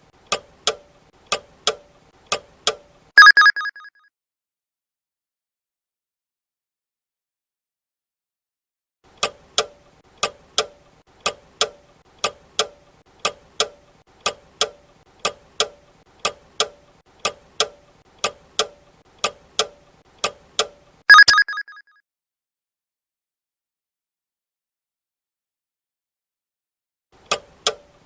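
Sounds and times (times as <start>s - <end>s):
short loud ringing tone: 3.2s - 3.9s, 21.1s - 21.8s.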